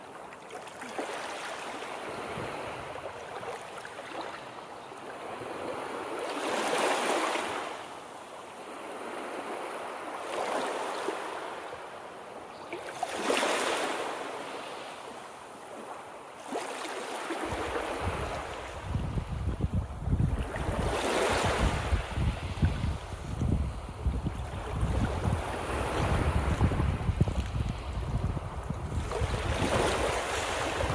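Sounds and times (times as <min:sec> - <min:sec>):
waves washing onto shore: 0:12.8 - 0:30.9
wind buffeting microphone: 0:17.5 - 0:30.9.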